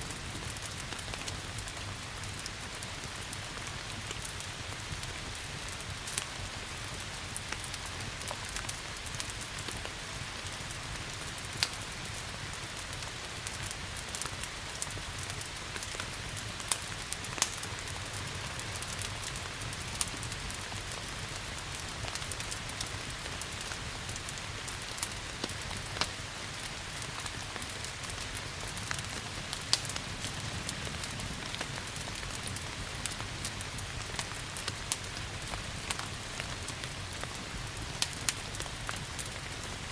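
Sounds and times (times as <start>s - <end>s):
steady rain hiss: 0.0s - 39.9s
wood fire crackling: 0.0s - 39.9s.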